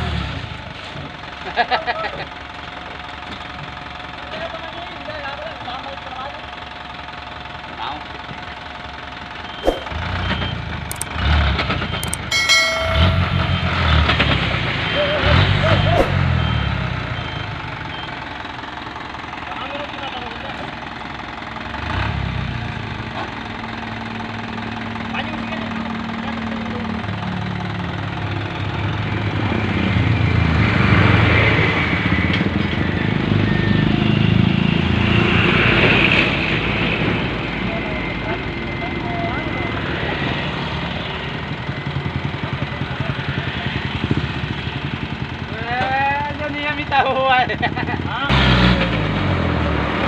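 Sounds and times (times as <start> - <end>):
diesel truck engine revving: 9.9 - 12.2, 13.5 - 18.5, 21.6 - 38.6, 48.3 - 50.0.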